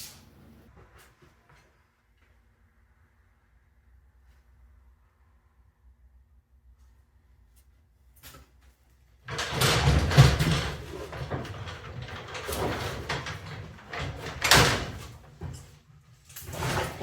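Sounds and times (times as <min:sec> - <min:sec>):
junk being dragged and scraped: 0:09.3 - 0:17.0
rattling: 0:09.3 - 0:17.0.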